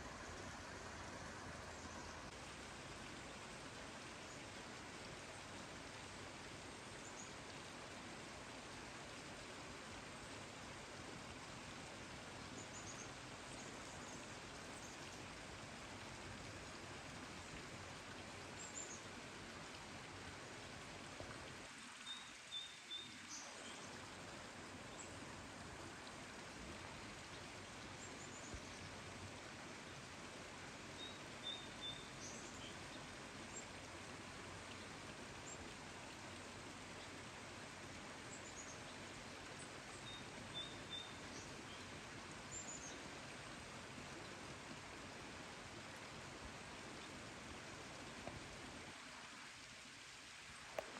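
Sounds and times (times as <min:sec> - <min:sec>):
rain hissing: 0:00.0 - 0:04.0.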